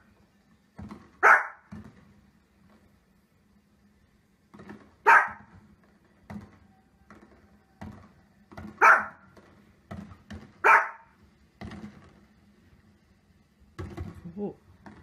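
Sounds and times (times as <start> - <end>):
small dog barking: 1.2 - 1.7, 5.0 - 5.5, 8.8 - 9.2, 10.6 - 11.2.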